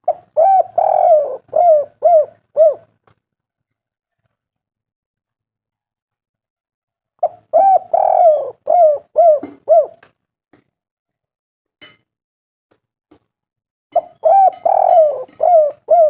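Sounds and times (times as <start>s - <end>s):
dove cooing: 0.0s - 2.9s, 7.2s - 10.0s, 14.0s - 16.0s.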